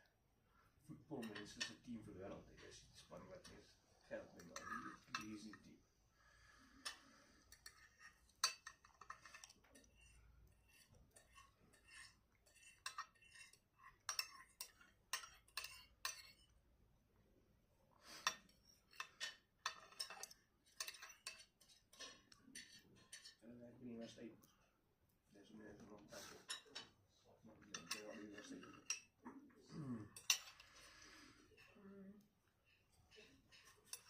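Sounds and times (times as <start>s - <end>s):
cutlery clinking against a plate: 1.2s - 1.9s, 4.3s - 5.7s, 6.8s - 16.5s, 18.0s - 23.4s, 26.2s - 27.0s, 27.6s - 29.5s, 30.1s - 31.8s, 32.8s - 34.0s.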